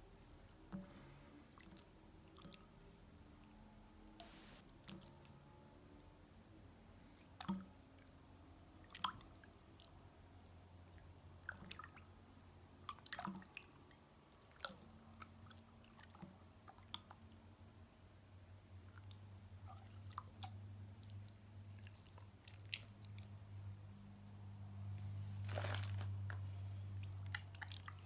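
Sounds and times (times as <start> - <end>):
faint low hum: 14.0 - 28.0.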